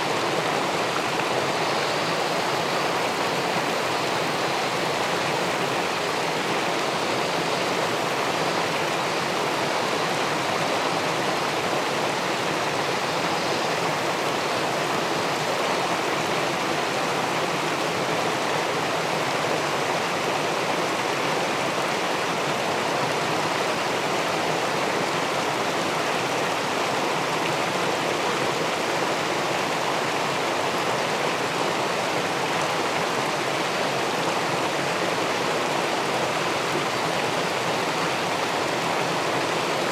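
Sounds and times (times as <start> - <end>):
water rushing over a weir: 0.0 - 39.9.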